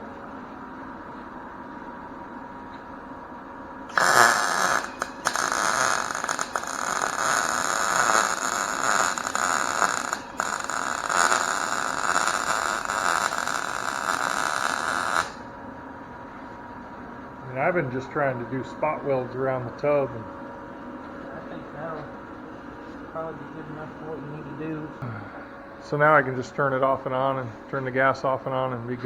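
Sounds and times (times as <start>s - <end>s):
welder arc crackle: 3.9s - 15.5s.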